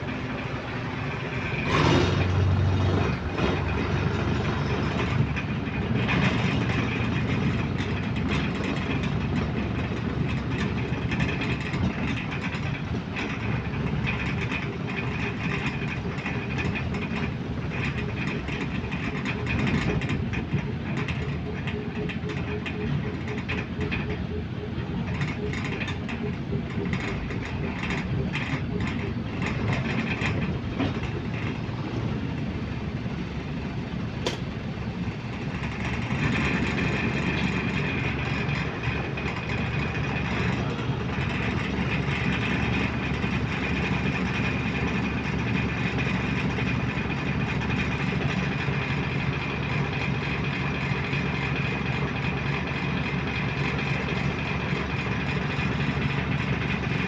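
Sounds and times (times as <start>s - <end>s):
bus engine and road noise: 0.0s - 57.0s
sharp click: 34.2s - 34.6s.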